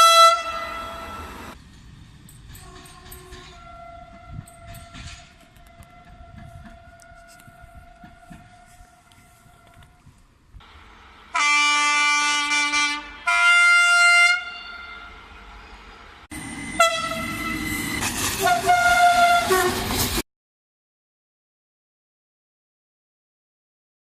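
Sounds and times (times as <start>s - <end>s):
train horn blasts: 0.0s - 1.6s, 2.6s - 10.0s, 11.3s - 15.3s, 16.6s - 20.0s
train passing rushing noise: 14.7s - 20.2s.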